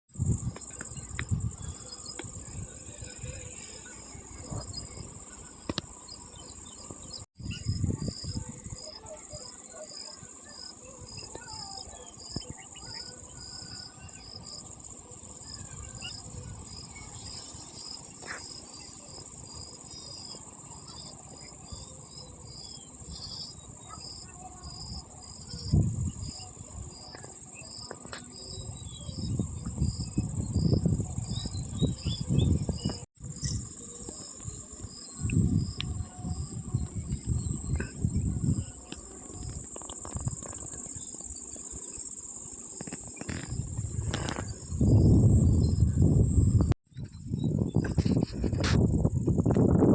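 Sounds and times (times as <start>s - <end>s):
wind buffeting microphone: 0.1s - 6.0s, 6.7s - 9.1s, 24.9s - 27.1s, 28.5s - 41.0s, 43.2s - 49.9s
high-pitched insect drone: 0.2s - 49.7s
crickets chirping: 0.2s - 49.9s.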